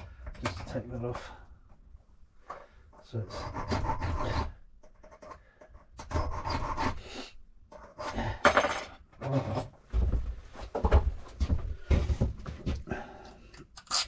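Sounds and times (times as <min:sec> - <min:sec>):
hand file rasping on metal key: 0:03.2 - 0:05.2.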